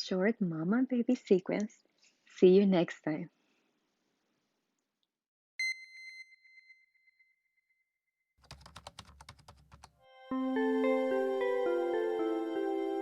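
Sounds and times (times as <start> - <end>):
soft sustained music notes: 10.1 - 13.0.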